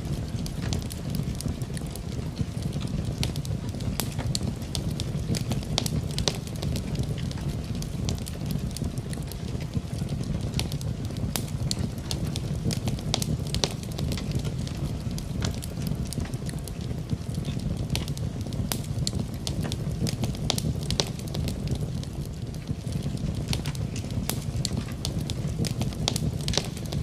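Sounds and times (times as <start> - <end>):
steady rain: 0.0 - 27.0
wood fire crackling: 0.0 - 27.0.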